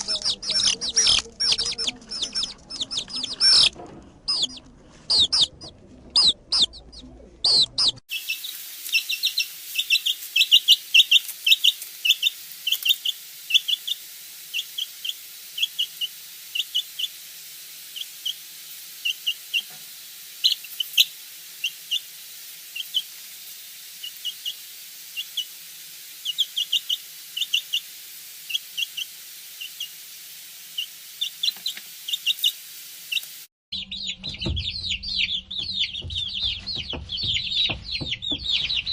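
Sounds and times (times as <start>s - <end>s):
birds chirping: 0.0s - 17.2s, 17.9s - 18.4s, 19.0s - 19.8s, 20.4s - 22.1s, 22.7s - 23.1s, 24.0s - 24.6s, 25.2s - 25.5s, 26.2s - 27.9s, 28.5s - 30.0s, 30.7s - 38.9s
steady hiss: 8.1s - 33.5s.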